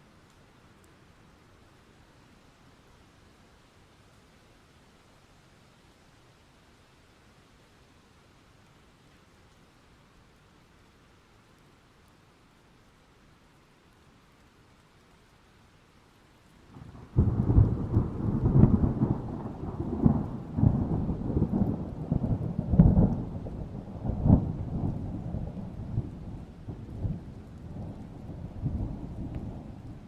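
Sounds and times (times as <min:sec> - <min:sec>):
rain falling: 0:00.0 - 0:30.0
thunder rumbling: 0:16.7 - 0:30.0.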